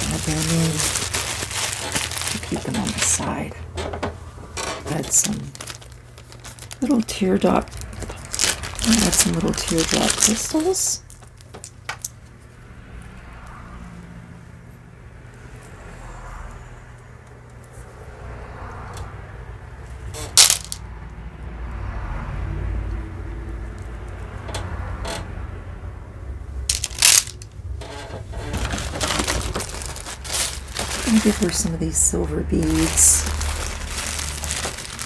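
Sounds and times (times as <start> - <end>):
rustle of handling jewelry: 0.0 - 3.6, 4.5 - 12.6, 20.2 - 20.8, 26.7 - 35.0
beads clinking: 4.8 - 12.1, 20.3 - 20.8, 26.7 - 27.5, 28.6 - 35.0.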